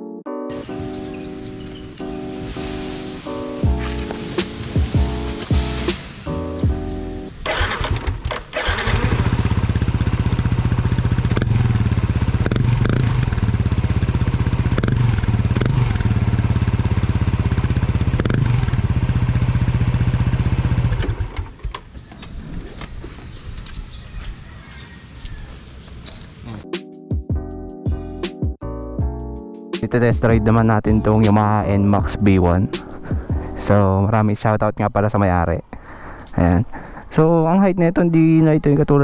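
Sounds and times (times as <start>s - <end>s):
scooter engine revving: 0.6s - 21.6s.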